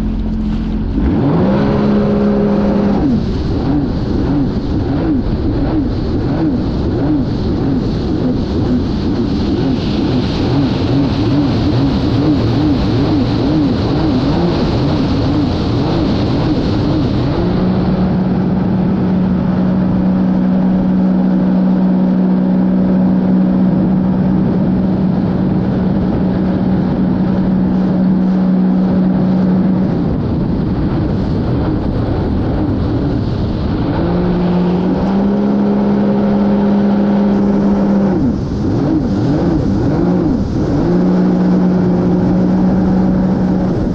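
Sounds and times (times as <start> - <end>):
watercraft engine running: 0.0 - 43.9.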